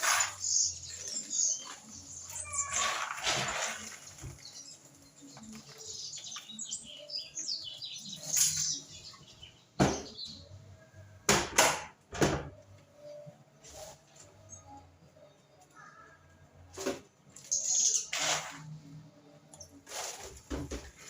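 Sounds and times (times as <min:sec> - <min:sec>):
kitchen rattling and scraping: 0:00.0 - 0:04.6.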